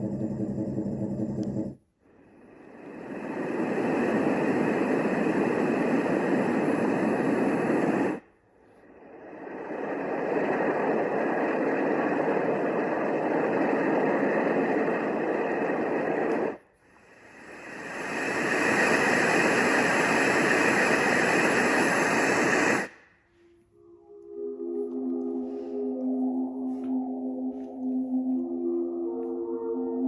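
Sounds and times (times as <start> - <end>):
steady rushing noise: 0.1 - 23.1
bright hissing noise: 2.1 - 28.9.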